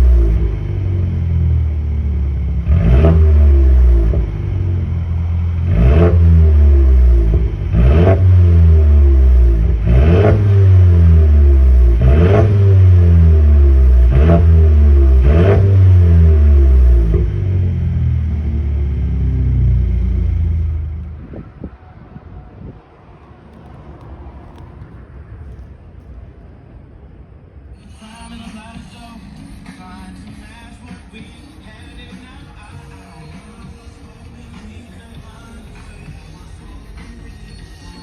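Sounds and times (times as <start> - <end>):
car engine revving: 0.0 - 21.6.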